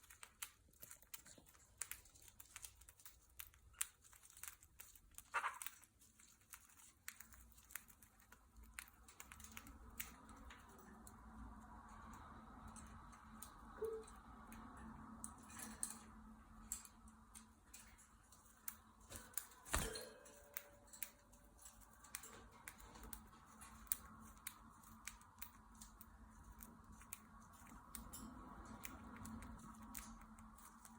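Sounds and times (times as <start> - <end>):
birds moving with clicks and scratches: 0.0 - 30.9.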